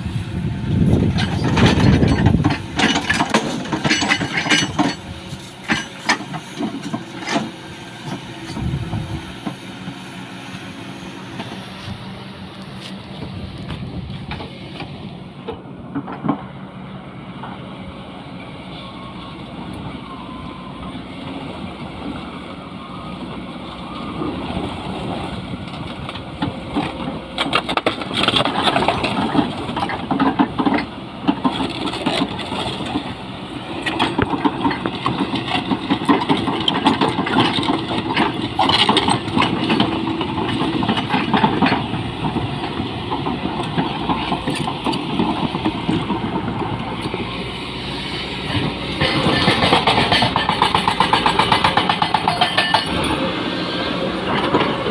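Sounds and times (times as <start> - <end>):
diesel engine running: 0.0 - 54.9
hydraulic rock breaker hammering rock: 0.8 - 10.0, 26.0 - 47.3, 48.3 - 54.9.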